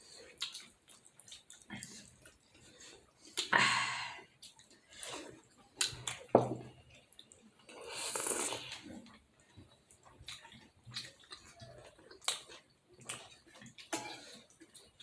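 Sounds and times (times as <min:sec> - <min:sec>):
noisy slurps: 0:07.8 - 0:08.9.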